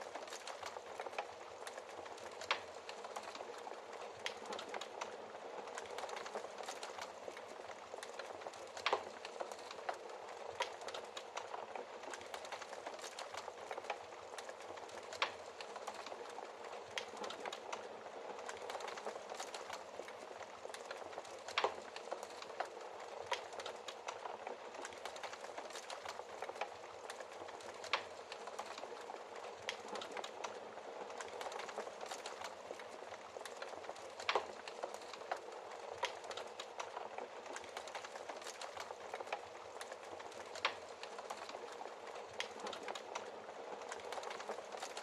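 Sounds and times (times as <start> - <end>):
wood fire crackling: 0.0 - 45.0.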